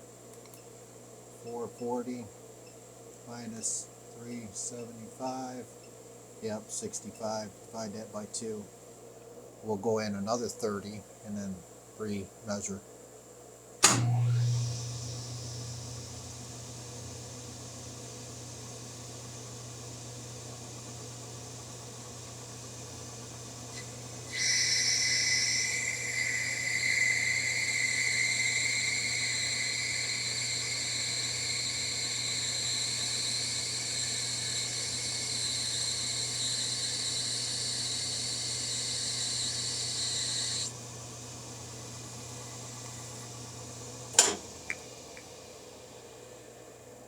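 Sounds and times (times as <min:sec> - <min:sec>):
machine tool humming: 0:22.6 - 0:44.8
high-pitched cutting whine: 0:23.7 - 0:40.8.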